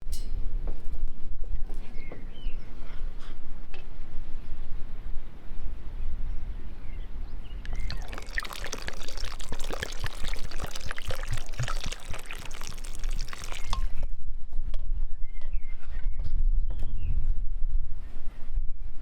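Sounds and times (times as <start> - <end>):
water pouring and splashing: 7.7 - 14.0.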